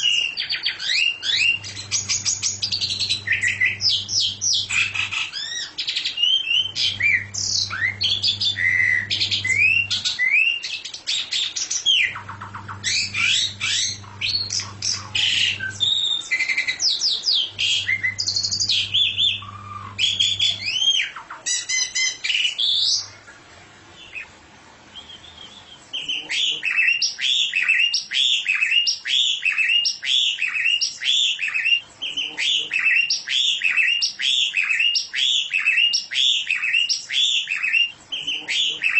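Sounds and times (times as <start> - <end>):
songbird singing: 0.0 - 38.9
low hum: 1.3 - 5.1, 6.6 - 10.0, 12.1 - 15.9, 17.4 - 20.8.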